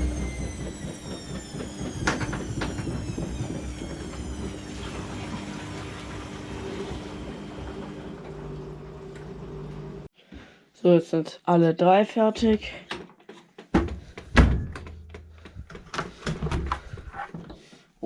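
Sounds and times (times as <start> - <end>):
washing machine motor whine: 0.0 - 10.1.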